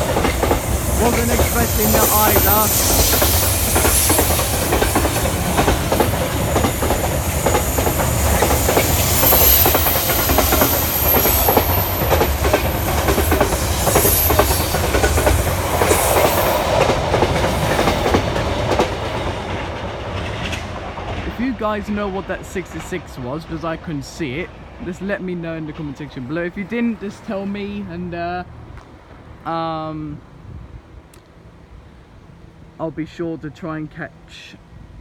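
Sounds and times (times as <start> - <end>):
train wagons clattering over rail joints: 0.0 - 26.9
diesel locomotive passing: 0.0 - 35.0.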